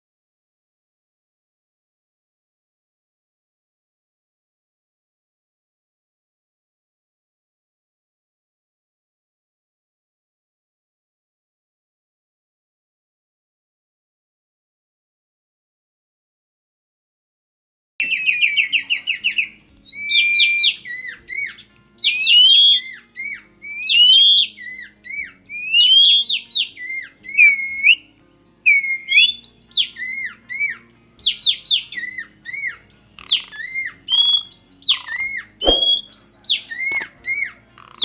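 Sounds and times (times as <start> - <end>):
birds singing whistled notes: 18.0 - 38.0
sharp knock: 35.6 - 36.0.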